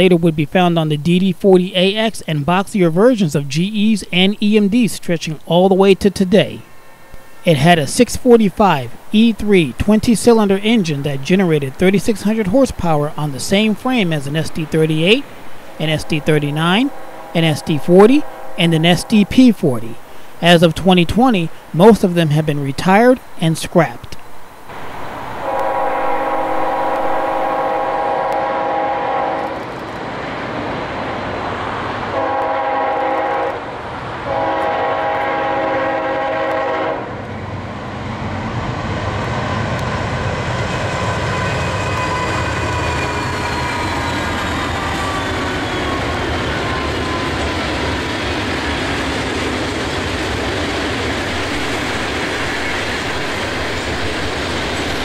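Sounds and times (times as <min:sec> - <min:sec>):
freight train rumbling past: 0:00.0 - 0:23.3, 0:24.3 - 0:55.0
locomotive horn blasts: 0:15.8 - 0:19.4, 0:25.4 - 0:29.6, 0:32.1 - 0:33.6, 0:34.3 - 0:37.1.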